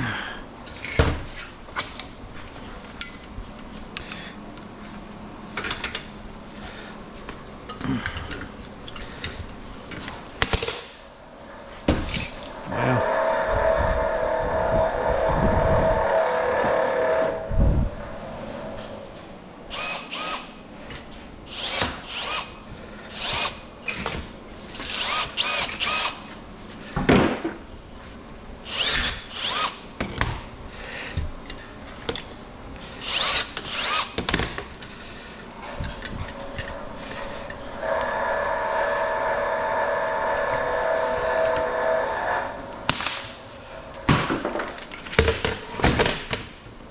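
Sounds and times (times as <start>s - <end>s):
steady motor hum: 0.0s - 46.1s
handheld power tool bursts: 21.5s - 26.3s, 28.6s - 29.8s, 33.0s - 34.5s.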